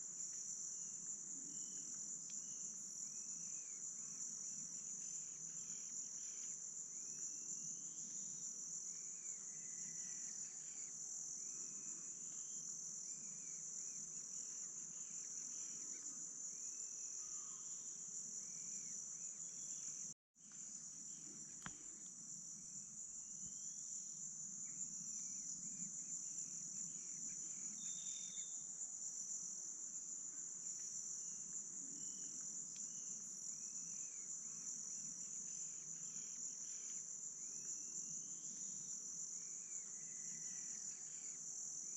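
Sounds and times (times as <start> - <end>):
insect chorus drone: 0.0 - 41.9
faint rising bird whistles: 27.6 - 28.6.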